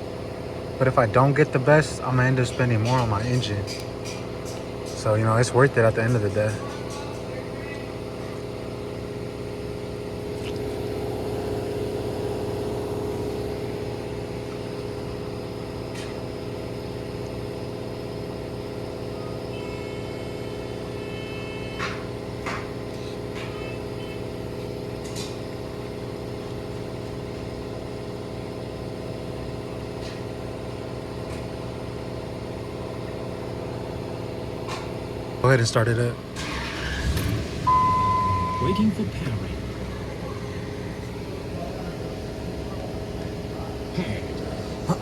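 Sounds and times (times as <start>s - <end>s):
mechanical hum: 0.0s - 45.0s
high electronic beeps: 37.6s - 39.1s.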